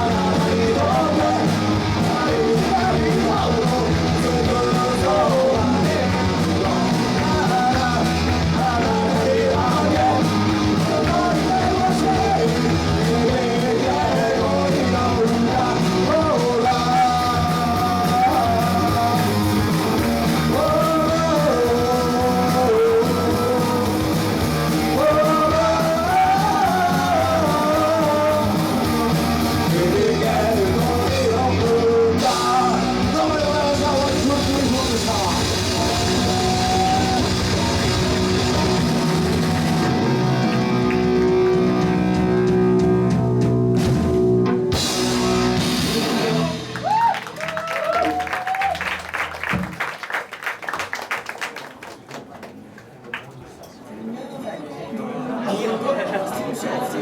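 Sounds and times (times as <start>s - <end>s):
person singing: 0.0s - 43.5s
rock band playing live: 0.0s - 48.3s.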